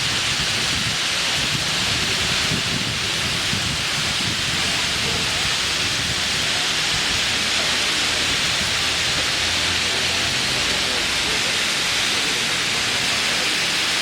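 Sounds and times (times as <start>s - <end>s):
fountain water splashing: 0.0s - 14.0s.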